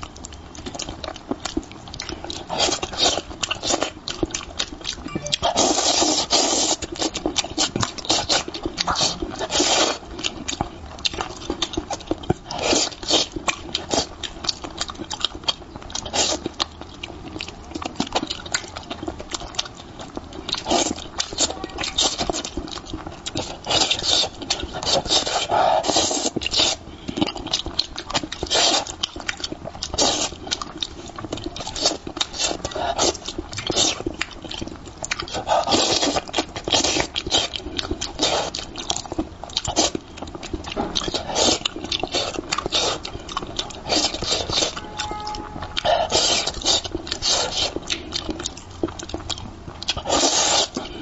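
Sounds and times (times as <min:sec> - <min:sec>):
person chewing and slurping: 0:00.1 - 0:51.0.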